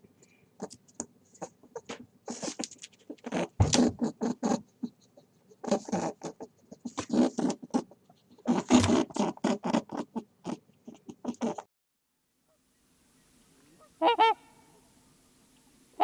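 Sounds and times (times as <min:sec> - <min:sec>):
animal chattering calls: 0:14.0 - 0:14.5.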